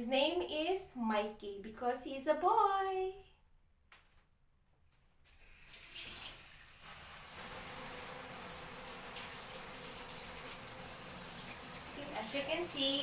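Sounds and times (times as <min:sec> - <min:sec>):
shower water spraying: 0:05.3 - 0:13.0.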